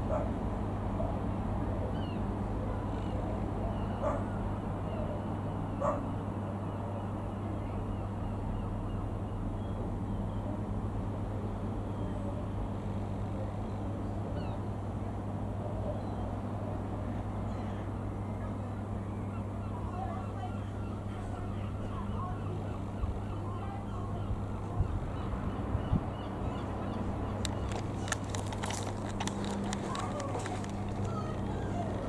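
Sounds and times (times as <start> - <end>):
dog barking: 0.1 - 0.4, 4.0 - 4.3, 5.8 - 6.1.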